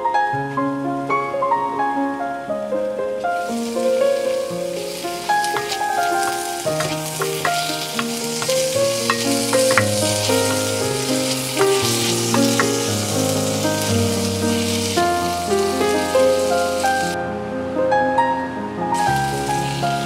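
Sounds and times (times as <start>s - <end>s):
food sizzling in a pan: 3.4s - 17.2s, 19.0s - 20.0s
instrumental background music: 4.0s - 17.1s
spatula tapping a pan: 5.4s - 13.1s.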